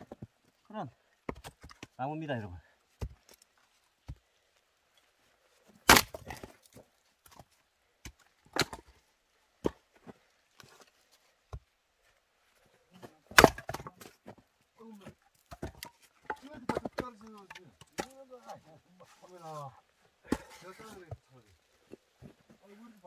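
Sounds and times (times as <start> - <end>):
firewood cracking as split: 5.8 - 7.4, 13.3 - 13.9.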